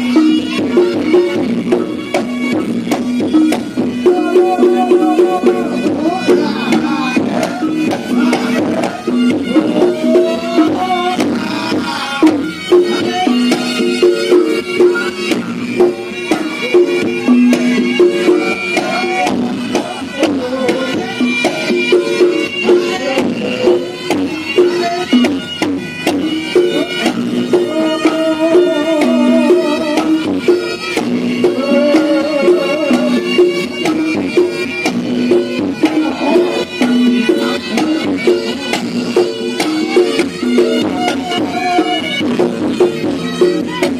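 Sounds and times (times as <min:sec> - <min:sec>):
regular drum beat: 0:00.0 - 0:43.9
reed trumpet melody: 0:26.4 - 0:34.6, 0:35.2 - 0:43.8.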